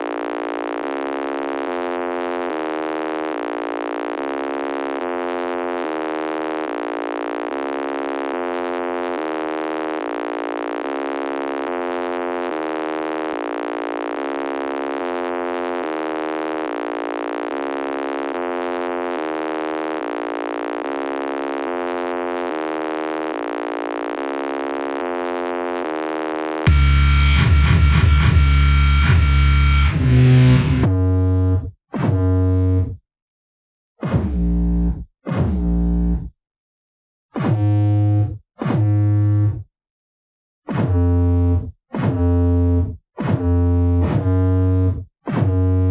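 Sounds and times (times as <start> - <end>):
buzzy electronic test tone: 0.0 - 31.6.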